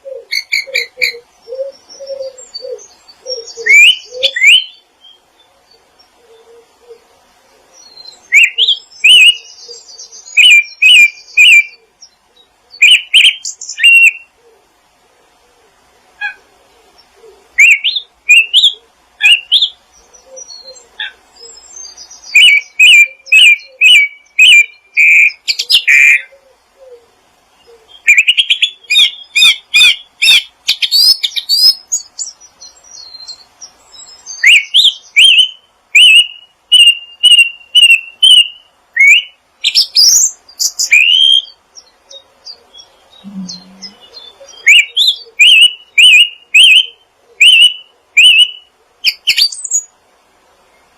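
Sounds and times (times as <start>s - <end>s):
songbirds chirping: 0.0s - 50.9s
faint low bird notes: 42.6s - 44.6s.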